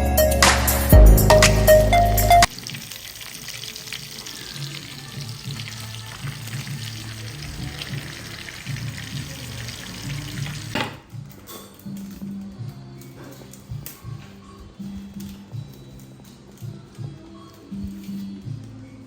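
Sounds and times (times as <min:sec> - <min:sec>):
shrimp deep-frying in hot oil: 0:02.5 - 0:10.8.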